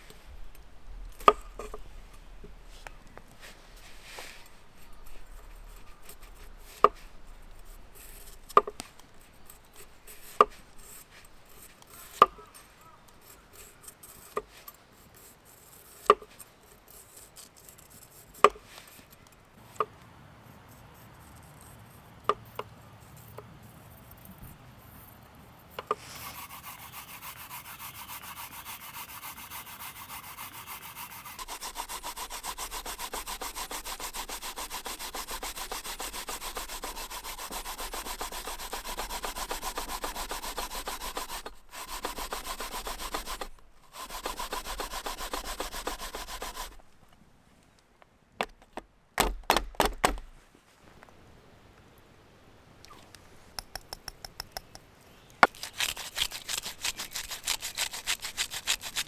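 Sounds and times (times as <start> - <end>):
sharp knocks: 48.4 - 50.4, 53.6 - 54.8.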